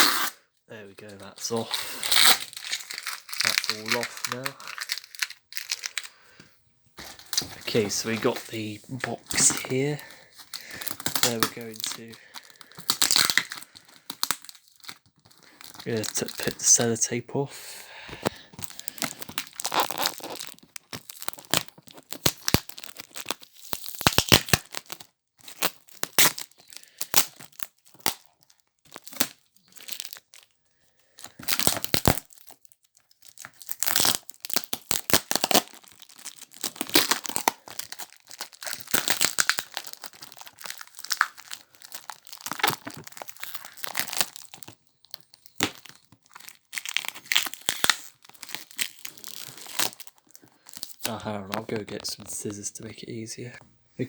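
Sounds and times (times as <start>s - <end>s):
tape peeling off a box: 0.0s - 0.4s, 2.0s - 5.1s, 18.6s - 26.6s.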